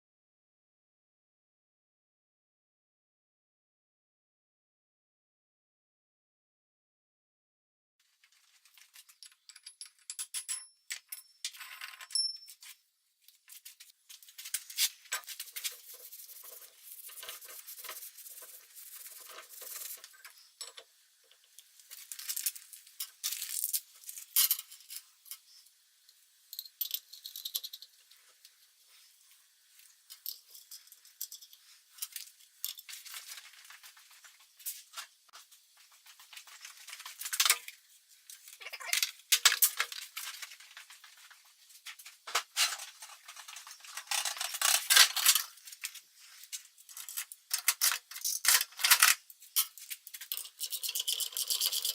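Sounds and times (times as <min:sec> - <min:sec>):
metal parts and tools clinking: 0:08.8 - 0:12.8, 0:21.9 - 0:25.6, 0:42.6 - 0:45.6.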